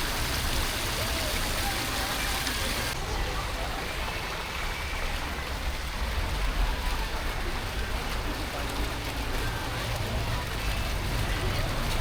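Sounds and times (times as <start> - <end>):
traffic rumble: 5.3 - 12.0.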